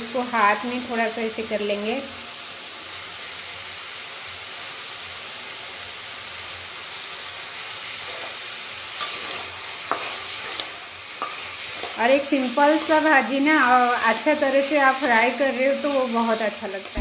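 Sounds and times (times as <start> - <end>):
vegetables sizzling in oil: 0.0 - 17.0
metal spatula scraping pan: 9.0 - 15.4.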